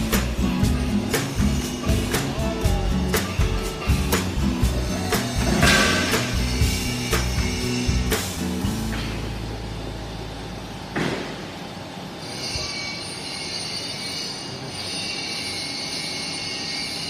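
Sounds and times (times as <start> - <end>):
machinery hissing: 0.0 - 12.0
high-pitched whine: 0.0 - 17.0.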